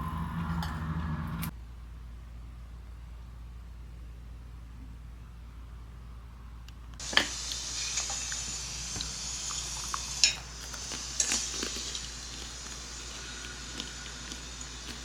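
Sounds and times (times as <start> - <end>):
food sizzling in a pan: 7.0 - 15.0.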